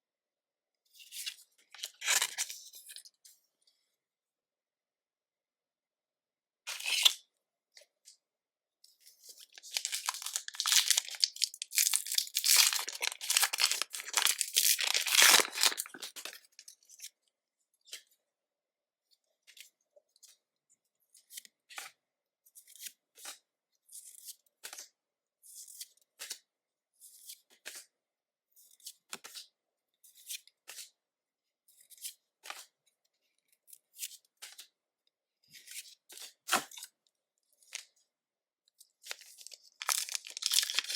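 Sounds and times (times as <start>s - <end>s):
foil wrapper tearing and crinkling: 9.5s - 16.4s, 39.4s - 40.9s.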